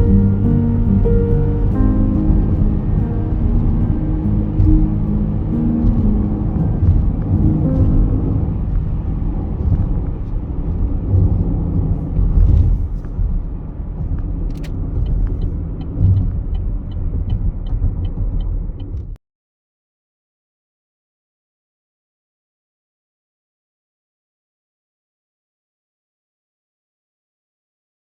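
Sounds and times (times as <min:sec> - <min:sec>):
regular ticking: 0:00.0 - 0:10.3
car rumbling on the move: 0:00.0 - 0:19.2.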